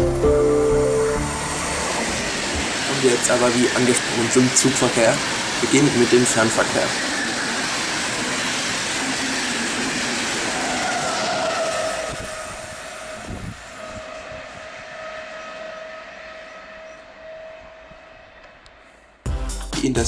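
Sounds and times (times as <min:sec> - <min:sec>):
steady high tone: 0:00.0 - 0:07.0
train wheels rushing on rail: 0:00.4 - 0:19.2.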